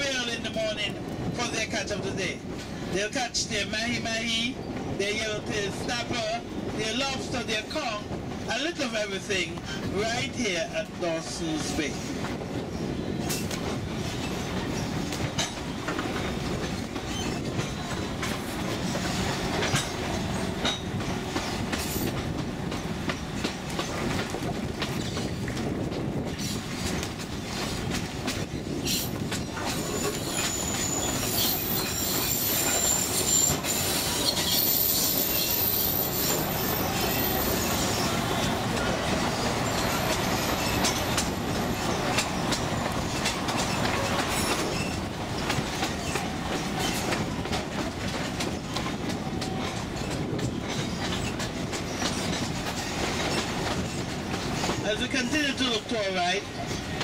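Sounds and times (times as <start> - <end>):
train wheels clattering on rails: 0.0 - 57.0
high-pitched wheel squeals: 29.6 - 38.6.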